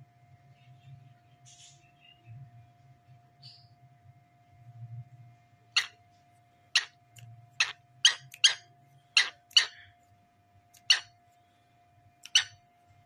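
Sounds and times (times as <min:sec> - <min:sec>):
cockatiel chirping: 0:07.6 - 0:09.8, 0:10.8 - 0:11.1.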